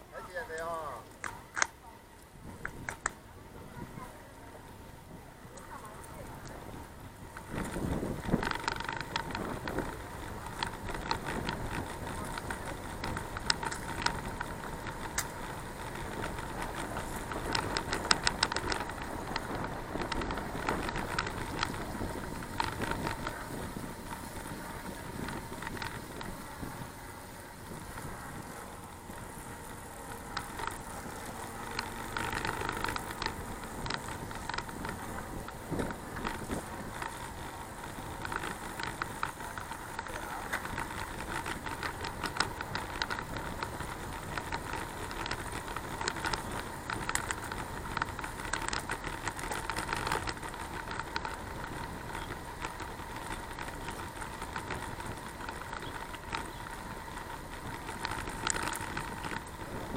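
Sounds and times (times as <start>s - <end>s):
bicycle road rumble and rattles: 0.0s - 59.9s
faint steady whine: 0.0s - 59.9s
sharp clicks: 0.4s - 1.8s.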